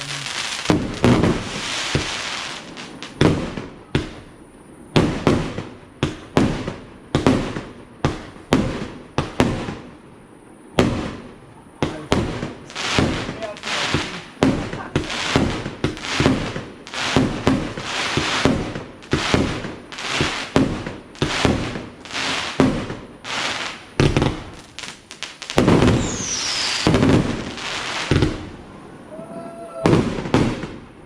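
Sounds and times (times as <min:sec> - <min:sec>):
hissing crackling burst: 0:00.0 - 0:04.3, 0:10.8 - 0:28.8
fireworks bangs: 0:00.0 - 0:10.0, 0:10.7 - 0:31.0
falling firework whistle: 0:25.6 - 0:28.4, 0:29.0 - 0:30.6.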